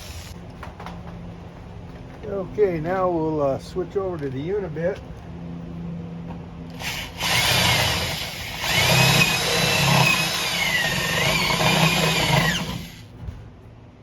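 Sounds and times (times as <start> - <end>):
power drill whining: 6.7 - 13.0
drill bit grinding metal: 6.8 - 13.0.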